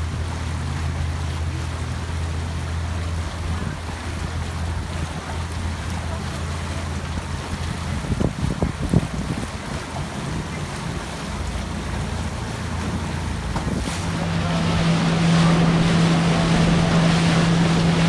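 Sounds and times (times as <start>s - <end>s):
boat motor humming: 0.0s - 18.0s
water noise: 0.0s - 18.0s
wind buffeting microphone: 7.6s - 11.0s, 12.6s - 18.0s.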